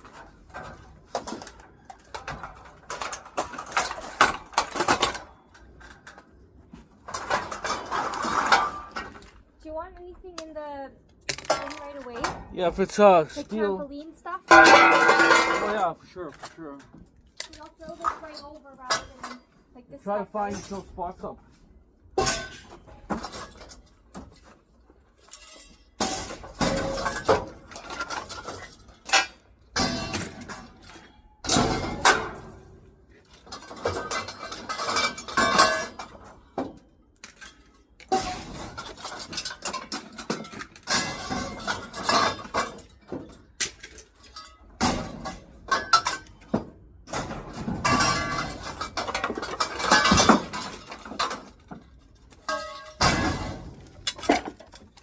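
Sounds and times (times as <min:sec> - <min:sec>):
scrap metal clanking: 0:00.0 - 0:09.4, 0:14.5 - 0:16.8, 0:22.2 - 0:55.0.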